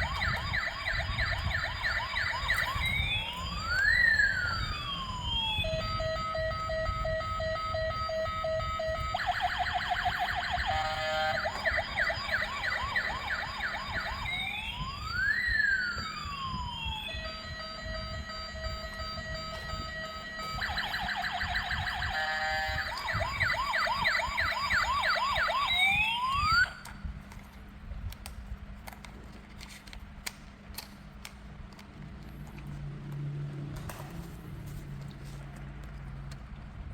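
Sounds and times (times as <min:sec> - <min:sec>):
toy electronic siren: 0:00.0 - 0:27.0.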